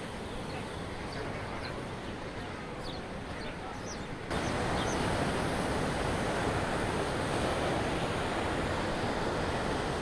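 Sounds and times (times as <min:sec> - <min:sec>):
wind: 0:00.0 - 0:10.0
waves breaking on shore: 0:04.4 - 0:10.0.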